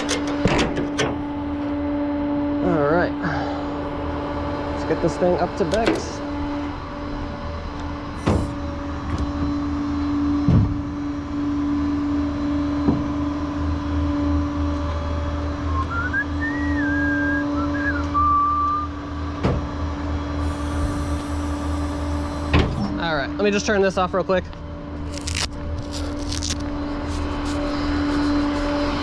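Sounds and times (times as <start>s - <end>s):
vehicle engine and road drone: 0.0s - 29.0s
whistle-like tone: 15.6s - 19.0s.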